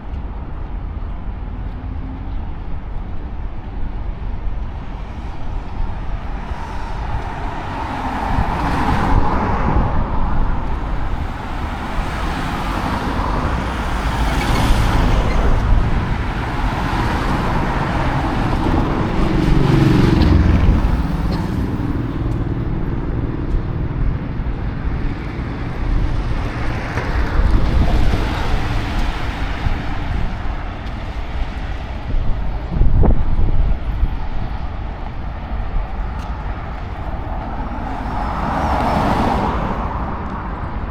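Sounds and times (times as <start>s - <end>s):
road traffic noise: 0.0s - 40.9s
loud engine passing: 12.2s - 30.2s.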